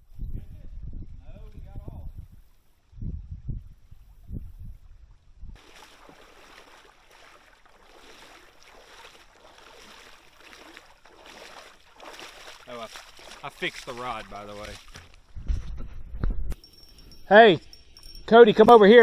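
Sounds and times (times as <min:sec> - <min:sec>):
creek water running over rocks: 0:05.6 - 0:15.4.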